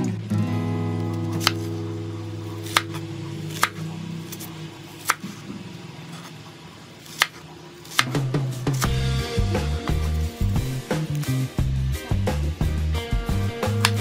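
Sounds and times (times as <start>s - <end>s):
guitar chord background music: 0.0s - 3.8s, 8.3s - 14.0s
knife chopping on wooden board: 1.3s - 1.7s, 2.6s - 3.8s, 5.0s - 5.4s, 7.1s - 9.0s, 13.8s - 14.0s.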